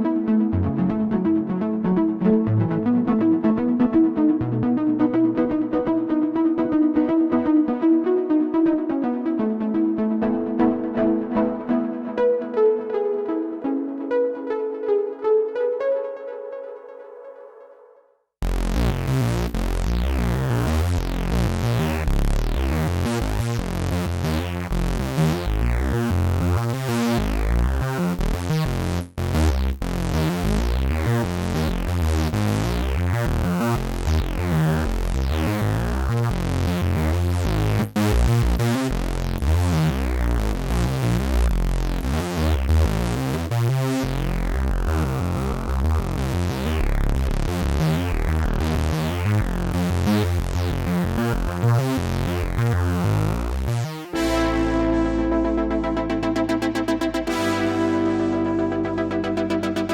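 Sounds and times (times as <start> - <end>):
synthesizer sequenced pattern: 0.0 - 17.7, 18.4 - 59.9.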